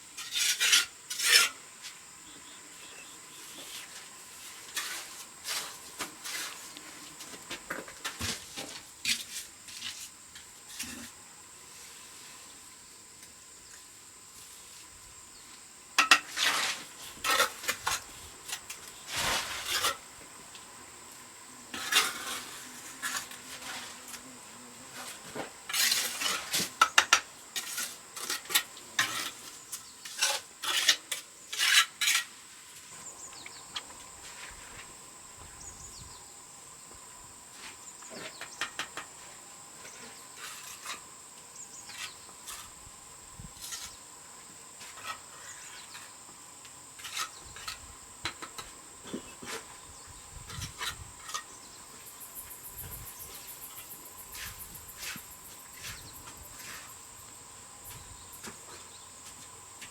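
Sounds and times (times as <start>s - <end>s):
insects buzzing: 0.0s - 59.9s
cricket trill: 33.0s - 59.8s.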